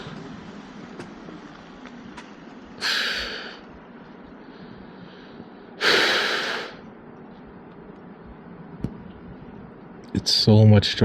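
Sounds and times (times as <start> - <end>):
low riding noise: 0.0 - 5.0
person breathing out sharply: 4.6 - 6.8.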